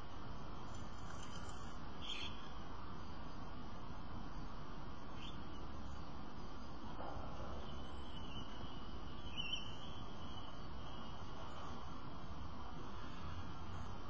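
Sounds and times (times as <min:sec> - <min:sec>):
outdoor background hum: 0:00.0 - 0:14.0
faint high bird chirps: 0:01.4 - 0:02.5, 0:05.1 - 0:06.1, 0:07.5 - 0:11.6.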